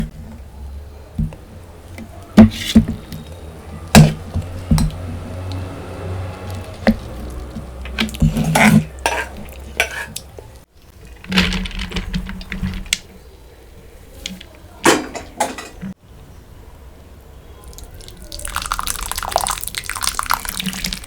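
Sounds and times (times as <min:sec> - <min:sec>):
spoon and dishes clinking: 0:07.9 - 0:10.4.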